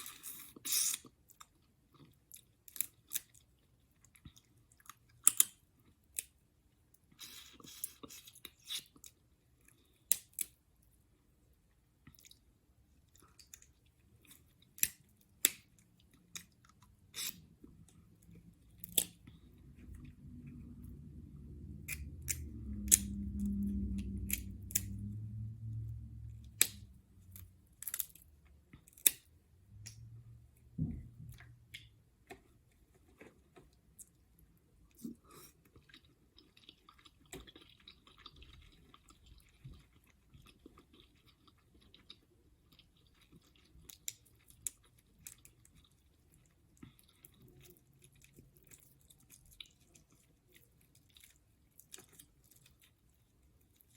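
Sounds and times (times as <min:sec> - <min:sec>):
person chewing close up: 0:00.0 - 0:06.4, 0:07.0 - 0:10.6, 0:11.6 - 0:30.1, 0:31.4 - 0:53.9.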